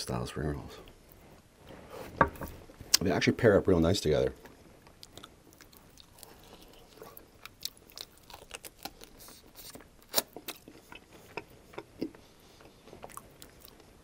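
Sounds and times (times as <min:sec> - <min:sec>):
chewing crispy rib crunching: 0:04.4 - 0:14.0.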